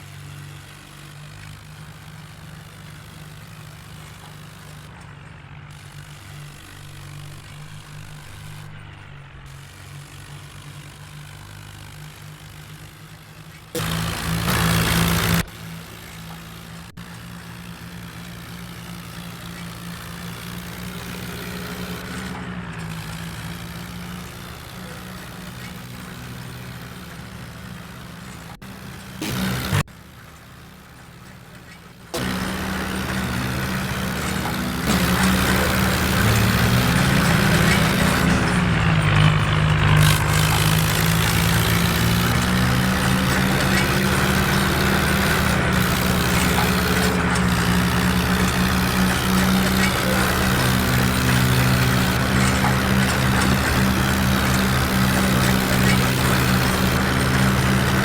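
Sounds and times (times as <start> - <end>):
tractor engine droning: 0.0 - 58.0.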